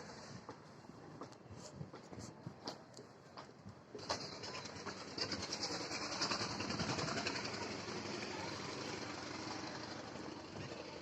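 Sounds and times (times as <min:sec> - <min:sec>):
wheels rattling over track: 0:03.9 - 0:11.0
train passing at high speed: 0:04.3 - 0:11.0.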